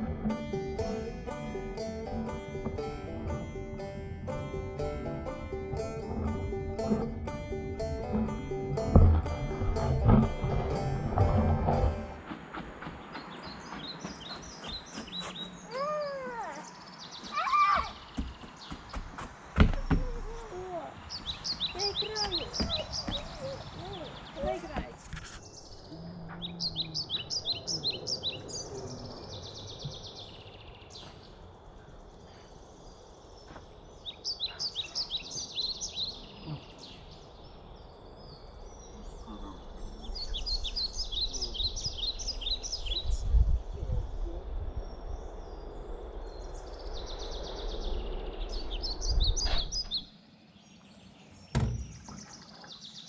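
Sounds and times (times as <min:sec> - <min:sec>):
low rumble: 0:00.0 - 0:12.9, 0:37.2 - 0:50.0
songbird chirping: 0:00.0 - 0:53.0.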